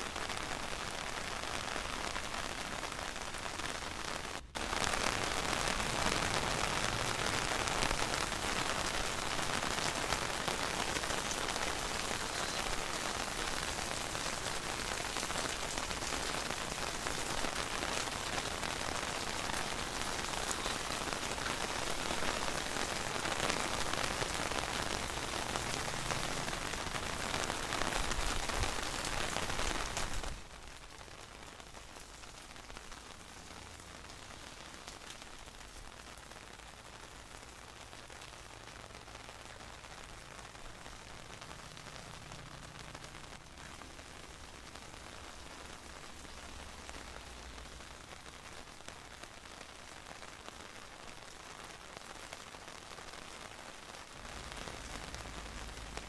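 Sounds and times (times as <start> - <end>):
heavy rain pattering: 0.0 - 56.0.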